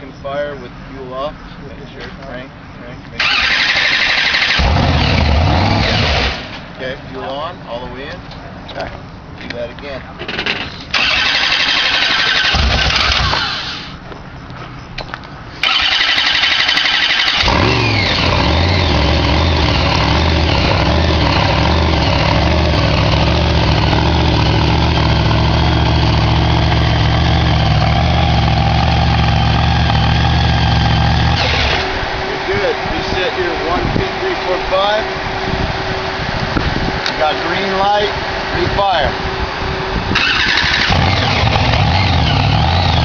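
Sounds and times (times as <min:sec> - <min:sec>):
engine starter cranking: 0:03.2 - 0:06.6, 0:10.2 - 0:14.0, 0:15.6 - 0:22.2, 0:31.3 - 0:31.9, 0:40.1 - 0:43.0
truck engine idling loudly: 0:15.6 - 0:35.3.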